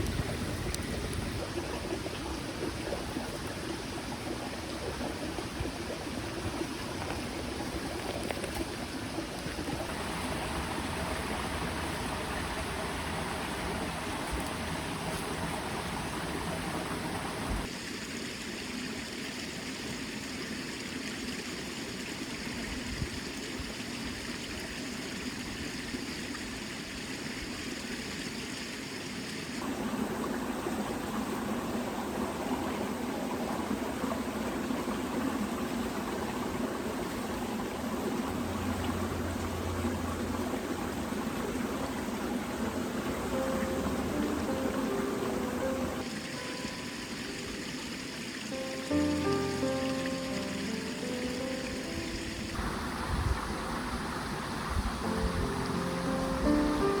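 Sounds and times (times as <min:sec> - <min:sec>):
creek flowing: 0:00.0 - 0:57.0.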